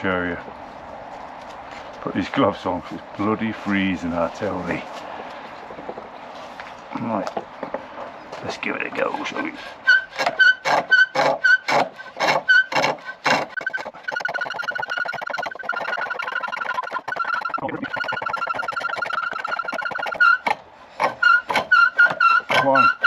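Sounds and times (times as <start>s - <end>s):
chisel scraping turning wood: 8.4s - 23.0s
treadle lathe working: 8.4s - 23.0s.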